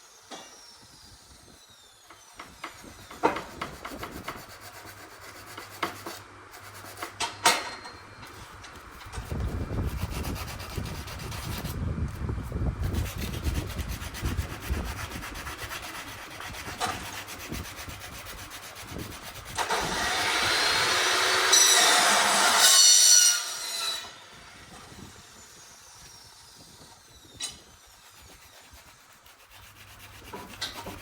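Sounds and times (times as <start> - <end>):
power cutting tool whining: 19.5 - 28.0.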